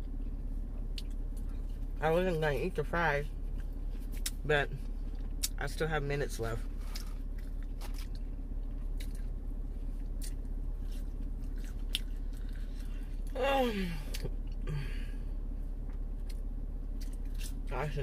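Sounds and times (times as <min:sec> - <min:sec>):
person chewing: 0:00.0 - 0:01.9, 0:03.4 - 0:05.6, 0:06.7 - 0:13.4, 0:15.8 - 0:17.7.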